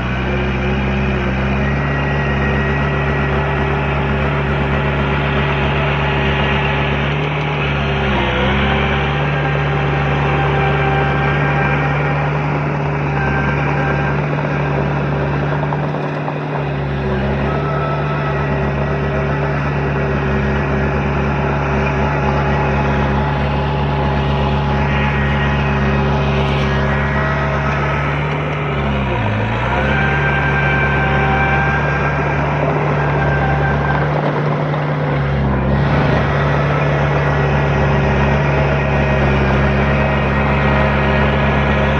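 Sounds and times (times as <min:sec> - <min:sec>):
heavy machinery diesel engine humming: 0:00.0 - 0:41.9
high whine: 0:00.0 - 0:41.9.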